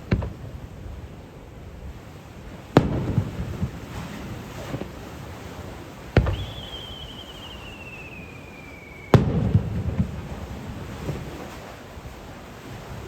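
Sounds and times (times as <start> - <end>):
firework launch thump: 0.0 - 0.4, 6.2 - 7.7, 9.1 - 11.6
firework bang with echoes: 2.8 - 4.9, 6.2 - 11.2
firework whistle descending: 6.2 - 10.5.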